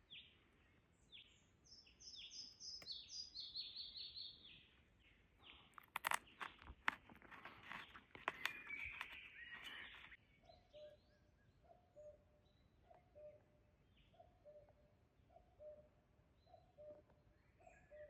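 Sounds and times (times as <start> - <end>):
faint high bird chirps: 0.0 - 18.0
crunching rustle: 5.4 - 10.2.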